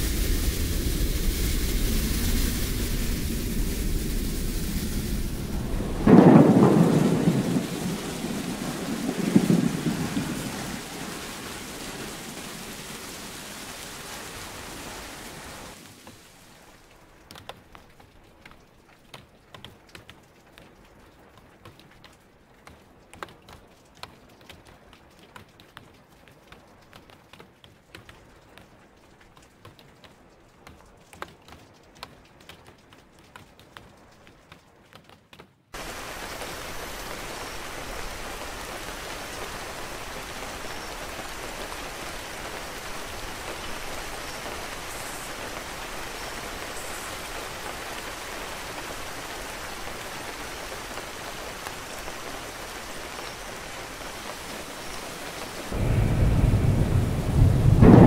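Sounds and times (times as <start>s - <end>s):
low rolling thunder: 0.0s - 13.1s, 55.6s - 58.0s
heavy rainfall: 0.0s - 58.0s
rain drip ticks: 0.0s - 58.0s.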